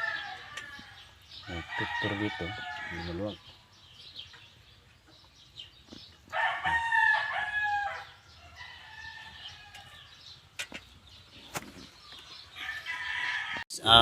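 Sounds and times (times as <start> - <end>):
rooster crowing: 0.0 - 3.2, 6.3 - 10.1, 12.6 - 13.6.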